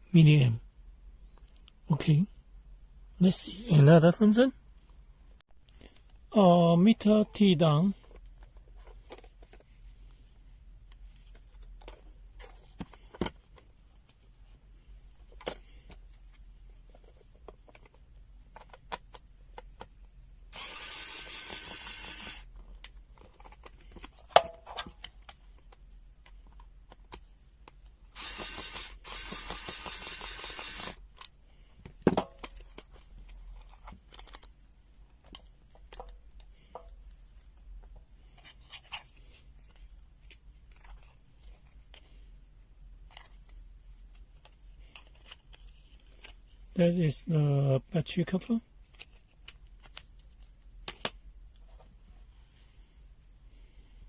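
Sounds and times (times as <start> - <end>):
electric screwdriver whirring: 20.6 - 22.5, 28.1 - 31.0.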